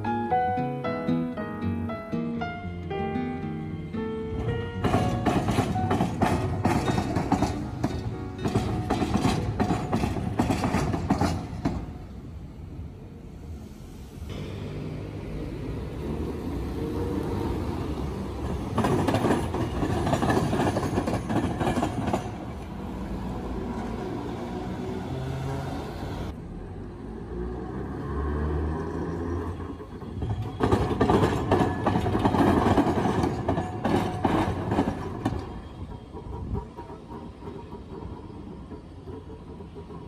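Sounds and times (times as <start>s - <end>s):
train running rumble: 3.9s - 26.4s, 29.4s - 40.0s
train wheels clattering: 4.3s - 12.2s, 18.0s - 24.3s, 29.4s - 40.0s.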